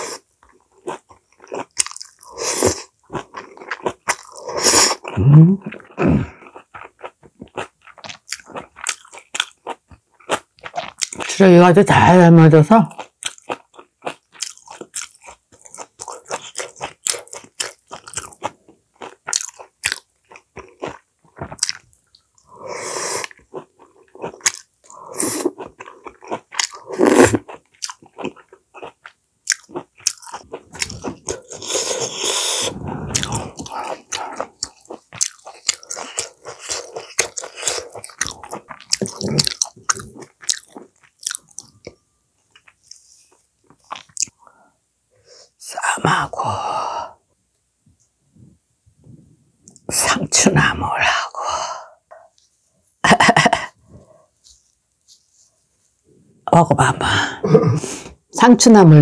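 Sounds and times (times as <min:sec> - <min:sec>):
person chewing food: 0:00.0 - 0:11.4, 0:12.9 - 0:45.6.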